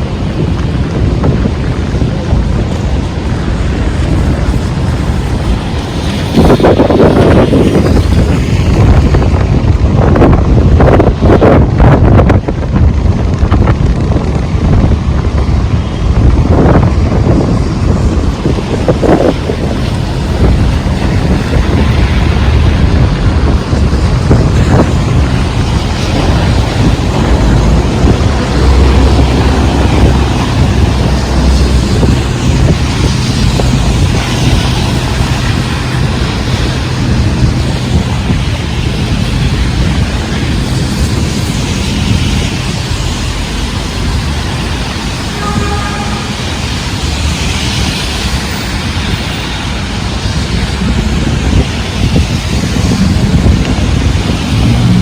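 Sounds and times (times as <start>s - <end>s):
heavy rain hiss: 0.0s - 55.0s
wind buffeting microphone: 0.0s - 55.0s.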